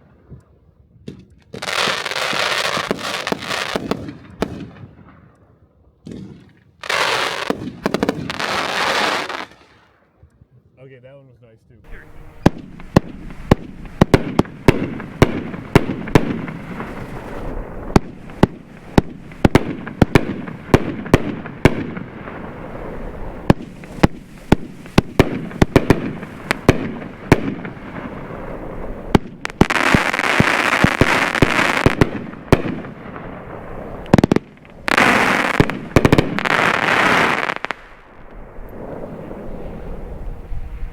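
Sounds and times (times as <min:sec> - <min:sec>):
firework bangs: 0:01.0 - 0:05.2, 0:06.0 - 0:09.8, 0:11.9 - 0:40.5
firework crackling hiss: 0:06.8 - 0:09.9, 0:11.9 - 0:40.5.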